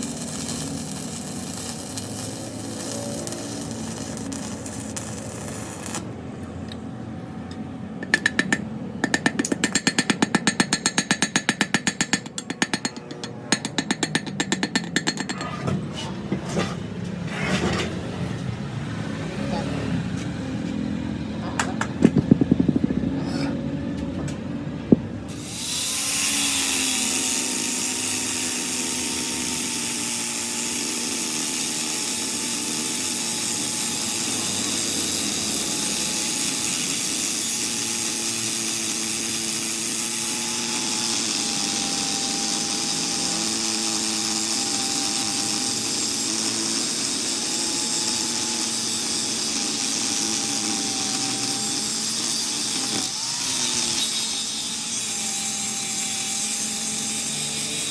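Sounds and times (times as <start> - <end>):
metalworking power tool whining: 0.0 - 6.8, 7.5 - 57.9
knocks: 21.5 - 23.2.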